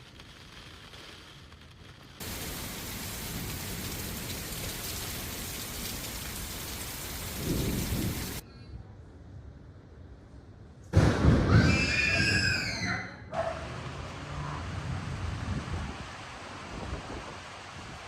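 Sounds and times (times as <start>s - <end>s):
heavy rain pouring: 2.2s - 8.4s
low rumble of thunder: 2.2s - 8.4s.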